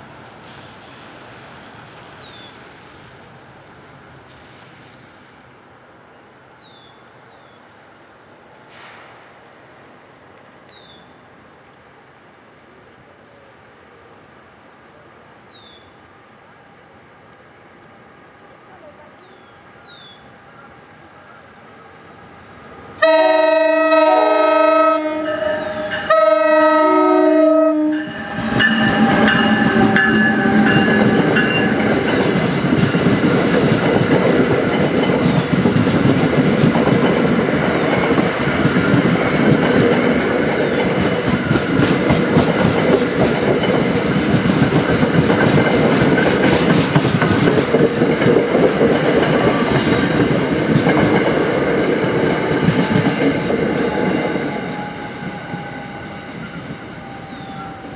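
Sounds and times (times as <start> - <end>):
locomotive air horn blasts: 23.0 - 31.2
train wheels clacking over rail joints: 28.0 - 54.5.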